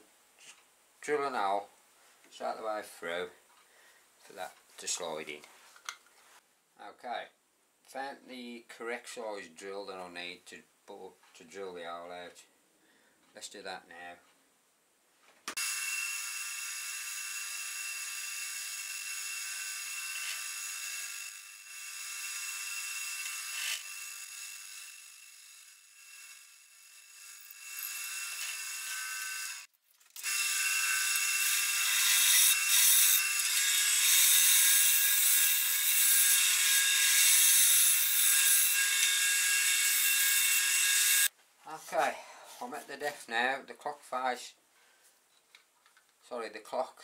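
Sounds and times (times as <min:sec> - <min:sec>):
drill bit rasping into wood: 0:15.6 - 0:41.3
wood lathe whining: 0:15.6 - 0:41.3.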